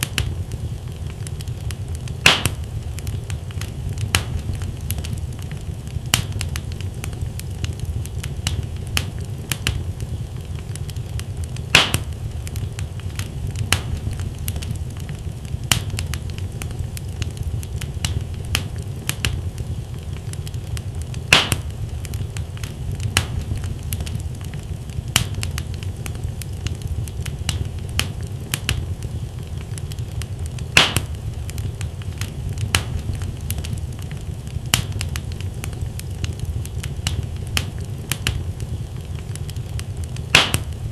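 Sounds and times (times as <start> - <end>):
logs crackling and popping: 0.0 - 40.9
low rumble of flame: 0.0 - 40.9.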